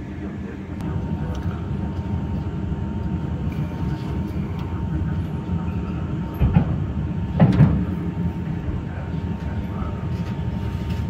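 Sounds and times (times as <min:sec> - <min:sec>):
faint steady whine: 0:00.0 - 0:11.0
wheels rumbling on track: 0:00.0 - 0:11.0
loud clunks: 0:06.4 - 0:08.8.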